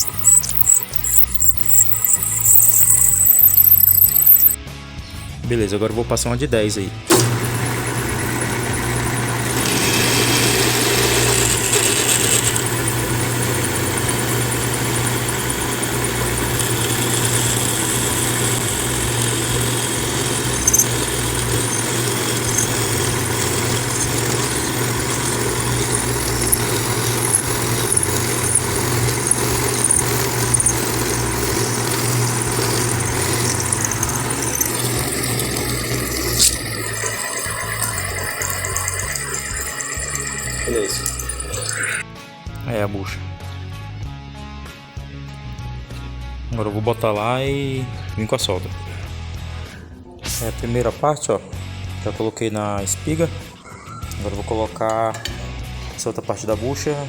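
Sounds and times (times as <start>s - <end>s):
drill bit cutting metal: 0.0s - 4.6s, 7.1s - 42.0s
drill motor running: 0.0s - 4.6s, 7.1s - 42.0s.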